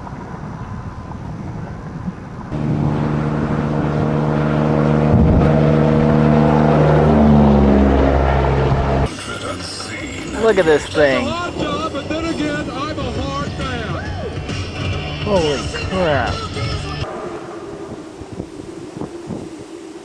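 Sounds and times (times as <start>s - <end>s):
rumbling rush: 1.0s - 20.0s
loud low drone: 2.5s - 20.0s.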